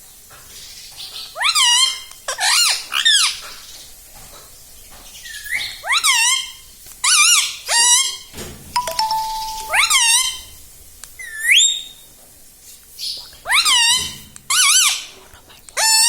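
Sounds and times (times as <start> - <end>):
parrot calling: 9.0 - 10.5.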